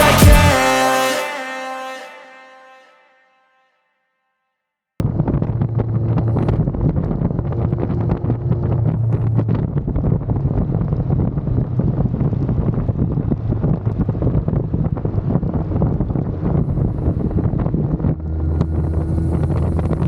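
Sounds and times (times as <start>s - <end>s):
motorcycle engine drone: 5.0s - 20.0s
wind noise on microphone: 5.0s - 20.0s.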